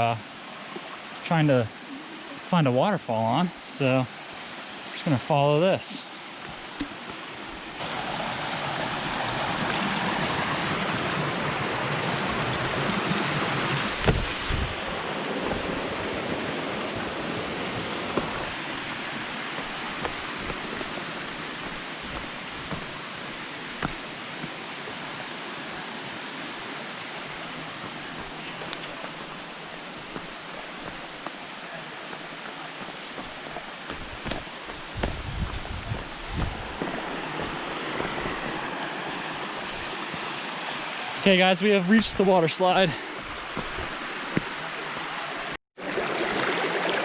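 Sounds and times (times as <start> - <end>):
water flowing over rocks: 0.0 - 47.0
brief low thumps: 33.9 - 36.9.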